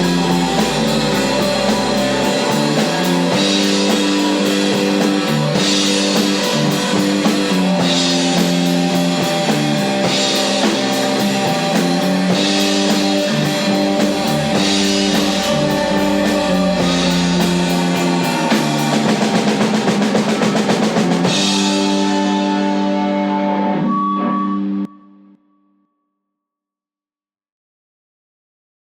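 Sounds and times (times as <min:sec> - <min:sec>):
cymbal crashes: 0:00.0 - 0:23.0
rock band playing: 0:00.0 - 0:23.8.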